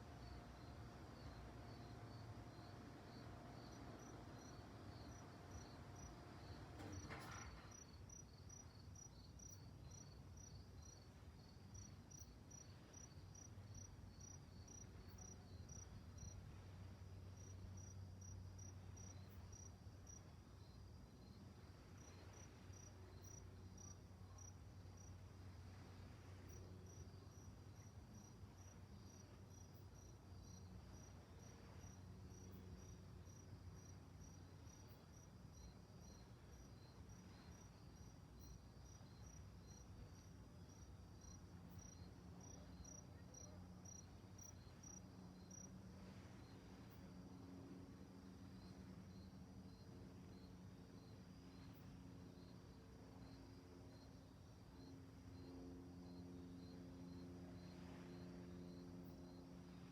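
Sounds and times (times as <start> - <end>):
crickets chirping faintly: 0.0 - 59.9.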